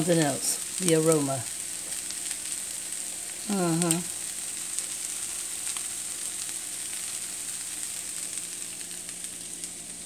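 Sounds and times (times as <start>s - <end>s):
food sizzling in a wok: 0.0s - 10.0s
person humming: 3.4s - 4.1s.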